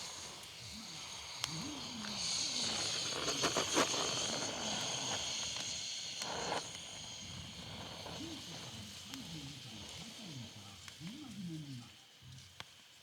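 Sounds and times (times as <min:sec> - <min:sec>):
wood fire hissing and crackling: 0:00.0 - 0:13.0
sharp pops from fire: 0:01.3 - 0:10.0.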